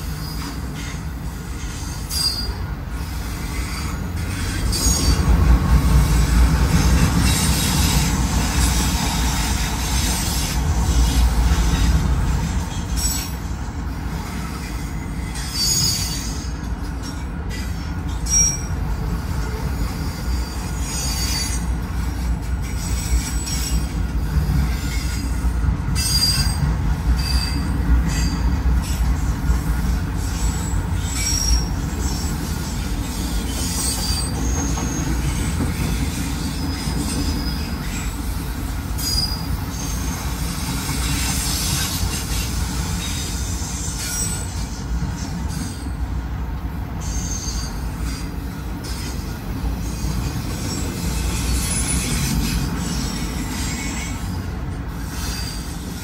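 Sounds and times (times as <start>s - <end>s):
train wheels rumbling on rails: 0.0s - 56.0s
high-pitched wheel squeals: 0.1s - 5.3s, 14.4s - 21.8s, 26.0s - 29.3s, 30.2s - 38.2s, 38.9s - 46.0s, 47.0s - 56.0s.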